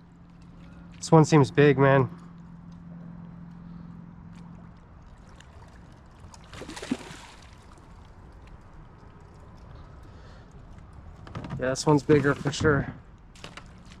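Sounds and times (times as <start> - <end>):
water sloshing around kayak: 3.6 - 11.2
water splash: 5.2 - 8.1.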